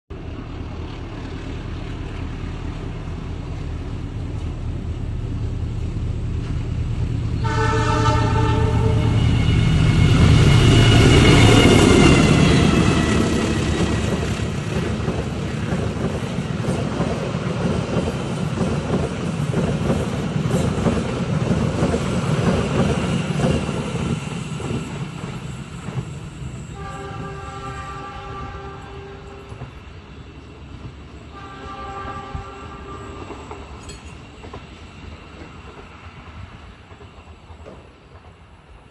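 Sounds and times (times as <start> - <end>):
train rumbling and rattling: 0.1 - 38.9
train horn blasts: 7.4 - 13.5, 26.7 - 29.7, 31.3 - 33.5.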